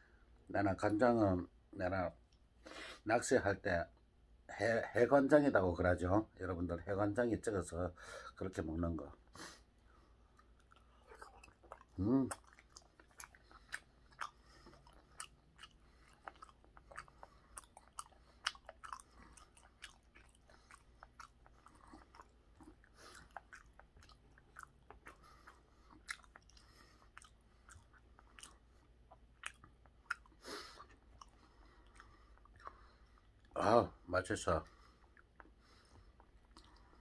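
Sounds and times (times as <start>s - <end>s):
faint chewing: 9.8s - 33.6s, 34.6s - 37.0s.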